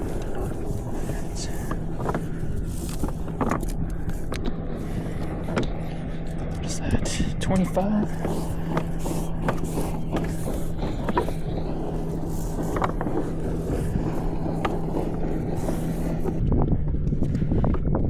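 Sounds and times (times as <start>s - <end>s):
boat engine humming: 0.0s - 18.0s
low engine rumble: 0.0s - 18.0s.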